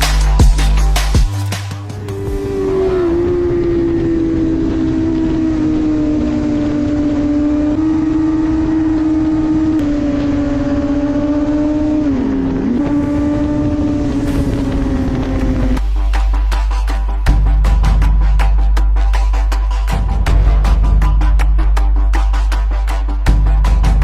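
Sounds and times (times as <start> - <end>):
motorcycle engine revving high: 1.8 - 15.8.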